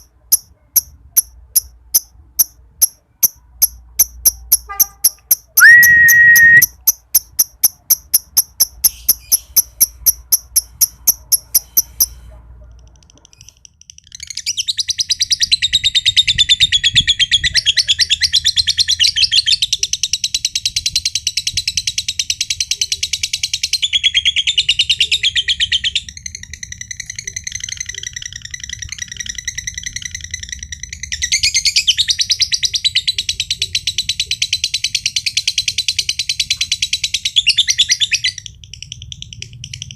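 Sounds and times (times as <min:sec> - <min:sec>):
lovebird chattering trill: 0:00.0 - 0:12.1
evenly spaced ticks: 0:00.0 - 0:14.1, 0:38.4 - 0:39.9
short loud whistle-like tone: 0:05.6 - 0:06.7.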